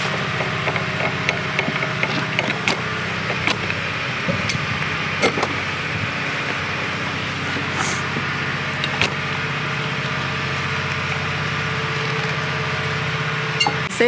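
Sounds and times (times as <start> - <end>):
clicks and knocks: 0.0 - 9.2
engine idling: 0.0 - 14.0.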